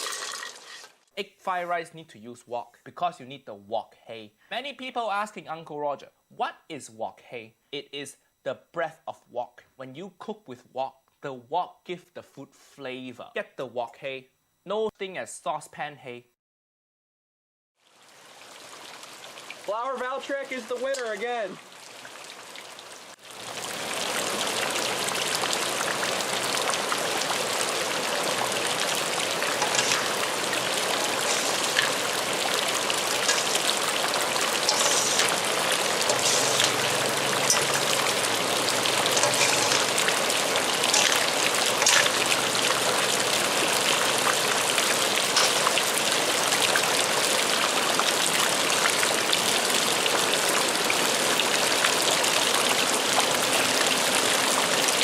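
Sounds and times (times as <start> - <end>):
heavy rain: 20.4 - 55.0.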